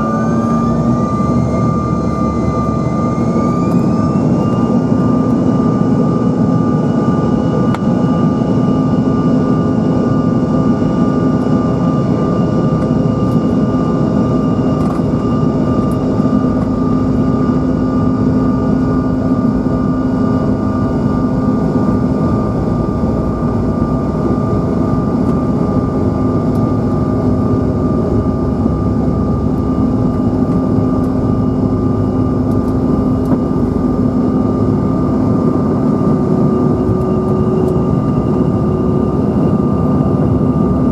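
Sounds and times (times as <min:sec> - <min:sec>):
constant engine whines: 0:00.0 - 0:40.9
jet engine cabin roar: 0:00.0 - 0:40.9.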